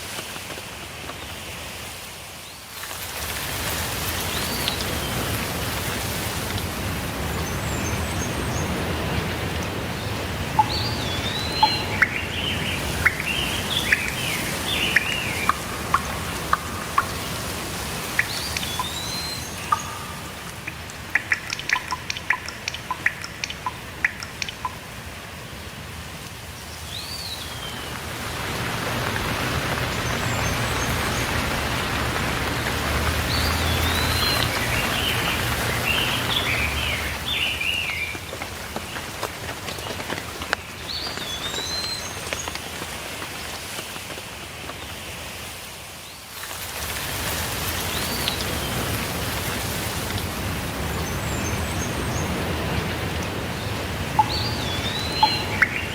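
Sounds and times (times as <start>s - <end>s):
rainfall hiss: 0.0s - 55.9s
small birds chirping: 4.1s - 24.9s, 26.6s - 42.8s, 50.7s - 55.9s
water drops plinking: 7.7s - 25.0s, 30.0s - 38.4s, 51.0s - 55.9s.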